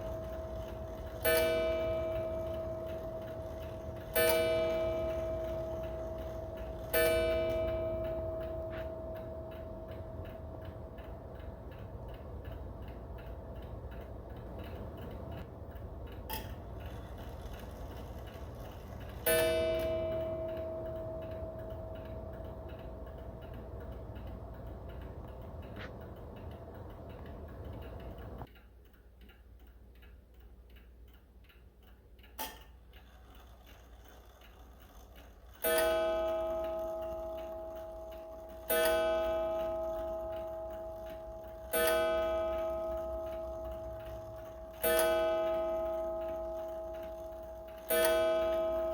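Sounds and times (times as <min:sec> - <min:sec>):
clock striking: 0:00.0 - 0:28.5, 0:32.2 - 0:48.9
mantel clock ticking: 0:00.0 - 0:48.9
sharp click: 0:31.8 - 0:32.8.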